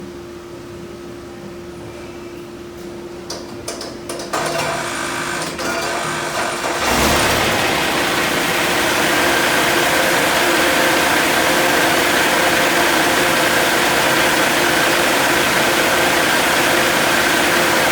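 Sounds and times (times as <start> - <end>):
starter clicks and whir: 4.1 - 17.9
diesel engine running: 4.5 - 17.9.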